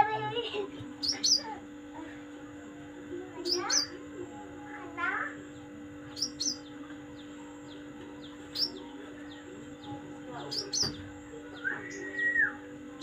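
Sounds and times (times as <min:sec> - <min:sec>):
steady background hum: 0:00.0 - 0:13.0
songbird chirping: 0:01.0 - 0:01.6, 0:03.3 - 0:13.0.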